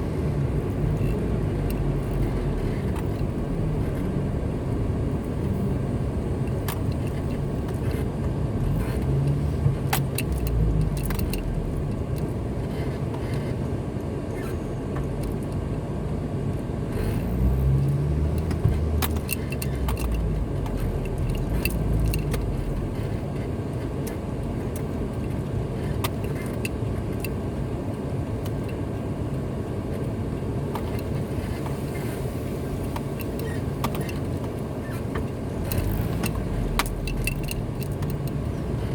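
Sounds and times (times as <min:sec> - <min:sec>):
car engine and tyres rumbling: 0:00.0 - 0:38.9
small clicks and rattles: 0:00.6 - 0:04.2, 0:06.4 - 0:08.1, 0:08.8 - 0:13.5, 0:17.8 - 0:27.4, 0:32.9 - 0:38.9.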